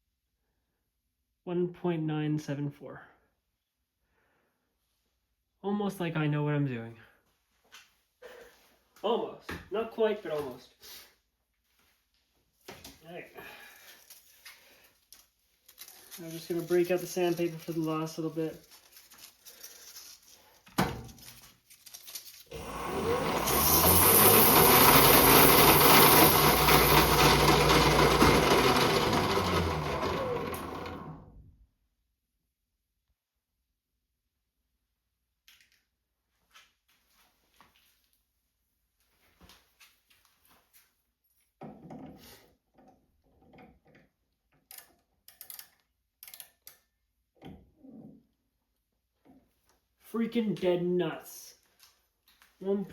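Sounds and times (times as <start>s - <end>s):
metal lathe running: 22.5s - 31.2s.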